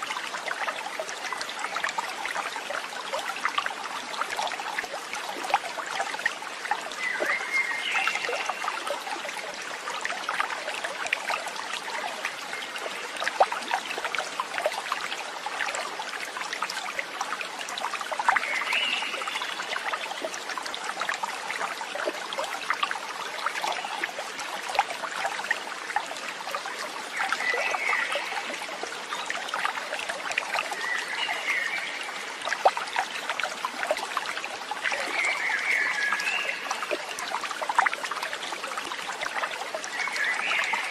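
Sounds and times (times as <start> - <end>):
water babbling in stream: 0.0 - 40.9.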